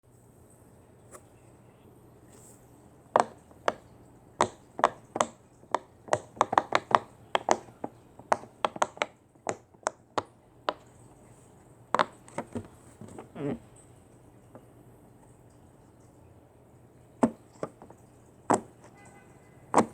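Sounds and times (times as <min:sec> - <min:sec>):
sharp irregular taps: 0:03.1 - 0:10.9, 0:11.9 - 0:13.3, 0:17.2 - 0:19.0, 0:19.7 - 0:19.9.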